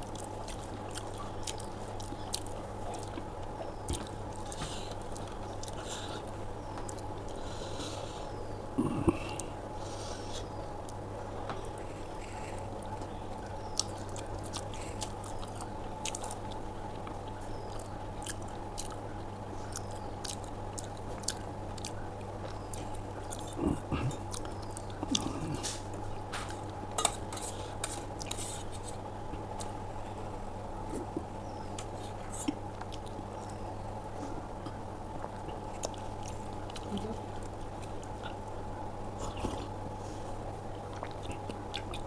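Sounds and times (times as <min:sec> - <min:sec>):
person chewing: 0:00.0 - 0:08.2, 0:13.7 - 0:19.0, 0:19.7 - 0:29.8, 0:30.9 - 0:33.6, 0:34.2 - 0:42.0
steady low hum: 0:00.0 - 0:42.0
swallowing: 0:08.7 - 0:09.6, 0:22.8 - 0:25.9.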